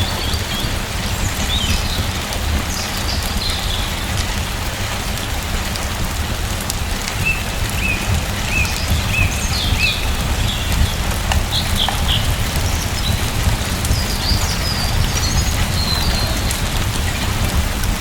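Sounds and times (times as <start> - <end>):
rain falling: 0.0 - 18.0
small birds chirping: 7.0 - 17.7.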